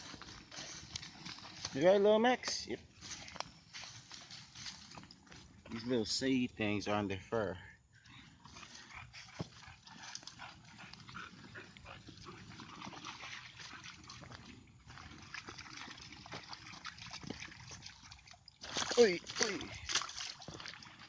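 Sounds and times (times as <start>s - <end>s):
dogs' steps crunching through leaves: 0.0s - 1.8s, 3.0s - 5.6s.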